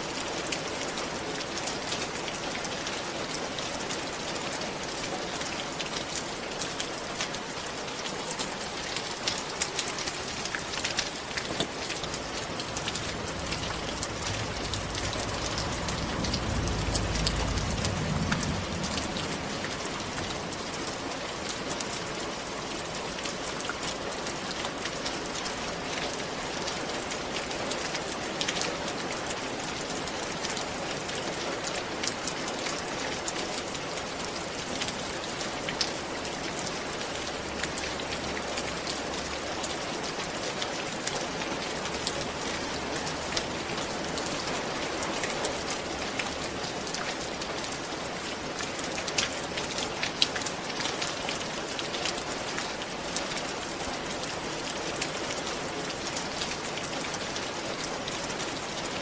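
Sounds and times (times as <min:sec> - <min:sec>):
rain on a roof: 0:00.0 - 0:59.0
low rumble: 0:11.2 - 0:21.6.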